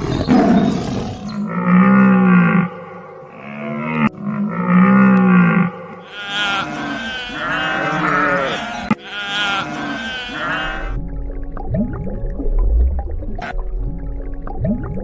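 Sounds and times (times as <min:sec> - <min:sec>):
deep drawn-out animal call: 0:00.0 - 0:11.0
sheep bleating: 0:06.0 - 0:11.0.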